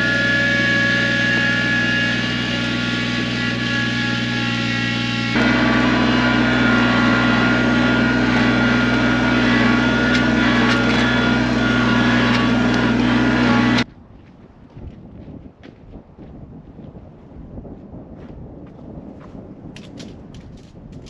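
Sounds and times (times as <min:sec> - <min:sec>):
tractor diesel engine running: 0:00.0 - 0:13.9
faint wind: 0:00.0 - 0:21.0.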